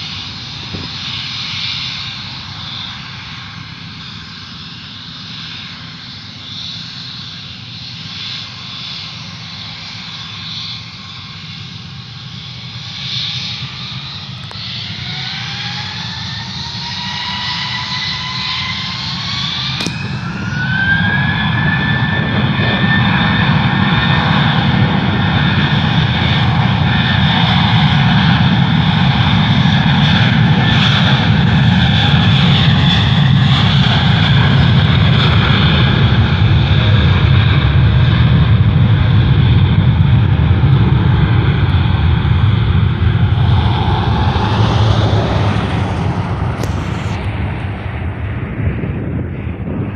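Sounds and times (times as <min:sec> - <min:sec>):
heavy rumble: 0:00.0 - 0:04.1, 0:19.7 - 0:49.9
jet engines spooling up: 0:00.0 - 0:49.9.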